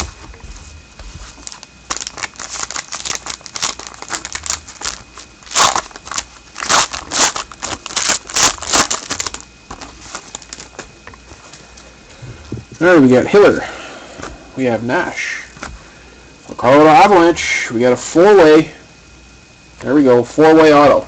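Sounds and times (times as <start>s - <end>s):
wrapper torn and crinkled: 1.4s - 10.8s.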